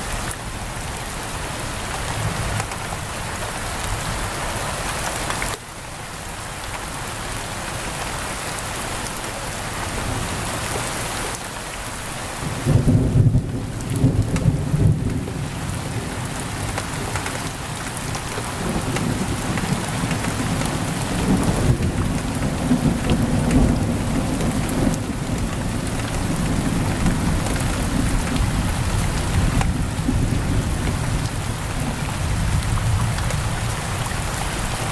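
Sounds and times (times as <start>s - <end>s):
heavy rain on a window: 0.0s - 34.9s
thunder rumbling: 12.4s - 34.9s.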